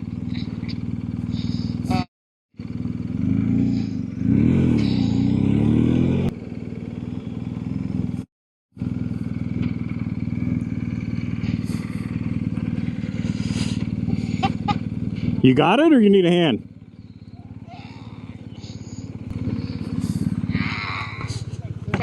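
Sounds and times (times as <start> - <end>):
motorcycle engine: 0.0 - 22.0.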